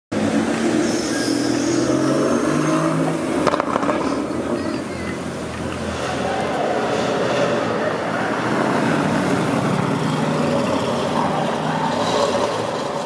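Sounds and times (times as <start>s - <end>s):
car engine and exhaust accelerating: 0.1s - 13.0s.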